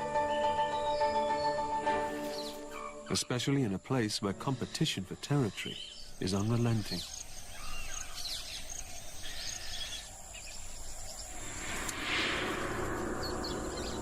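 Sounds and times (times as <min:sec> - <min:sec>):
bird chirps: 0:04.4 - 0:14.0
high-pitched insect drone: 0:06.0 - 0:14.0.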